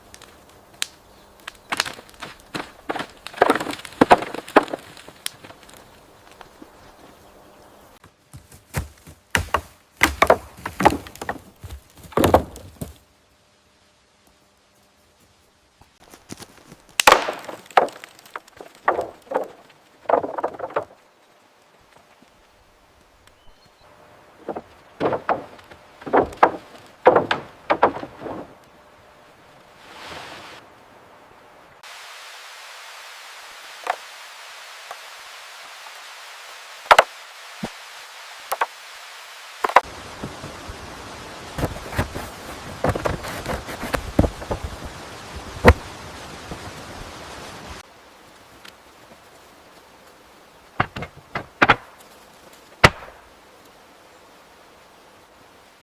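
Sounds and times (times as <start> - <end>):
wood knocking and cracking: 0.1 - 6.7, 8.0 - 13.0, 16.2 - 21.0, 24.4 - 28.7, 36.9 - 37.7, 38.5 - 38.7, 41.6 - 45.0, 45.6 - 45.9, 50.8 - 53.2
knocks and thuds on wood: 8.4 - 13.0, 24.4 - 28.6, 41.6 - 44.8, 50.8 - 51.8.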